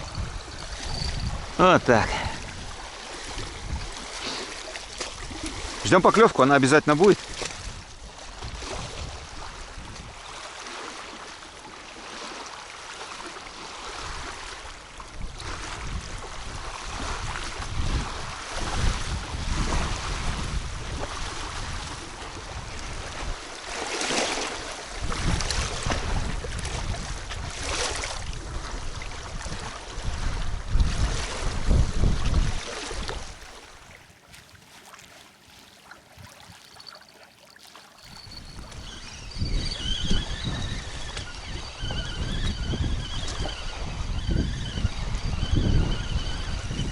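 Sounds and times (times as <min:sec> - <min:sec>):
wind gusting over microphone: 0:00.0 - 0:06.0, 0:06.9 - 0:10.3, 0:15.1 - 0:23.7, 0:24.3 - 0:34.7, 0:38.0 - 0:46.9.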